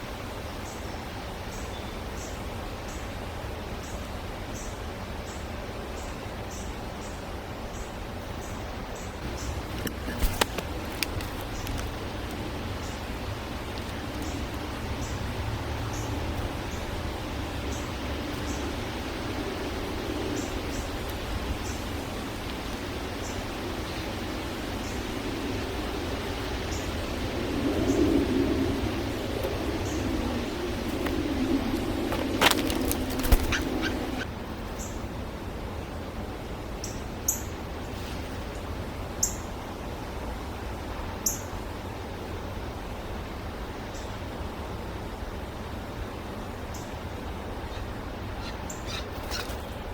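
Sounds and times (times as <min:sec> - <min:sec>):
rushing background noise: 0:04.3 - 0:36.7
small birds chirping: 0:06.0 - 0:35.0, 0:46.7 - 0:49.9
small bird chirping: 0:29.6 - 0:35.0, 0:47.7 - 0:49.9.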